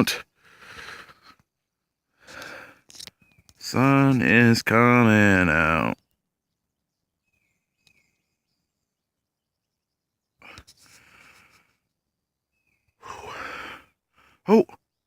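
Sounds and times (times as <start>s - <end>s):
faint whistled bird notes: 3.1s - 3.6s, 6.3s - 10.4s, 12.5s - 13.0s
person breathing out: 13.0s - 14.4s.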